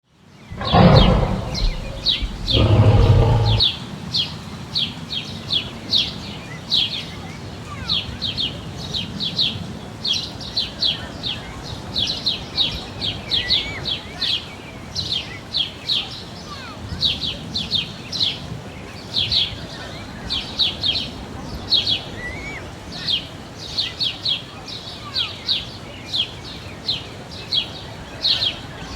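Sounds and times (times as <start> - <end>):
small birds chirping: 0.6 - 3.7.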